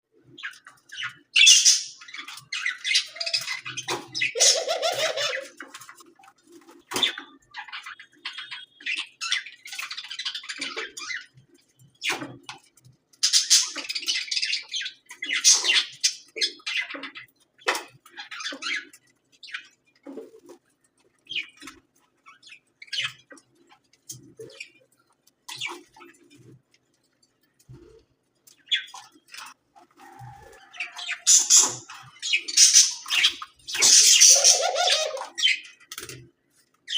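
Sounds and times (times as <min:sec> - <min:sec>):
budgerigar chirping and squawking: 0:01.4 - 0:05.6, 0:13.2 - 0:17.2, 0:30.7 - 0:35.6.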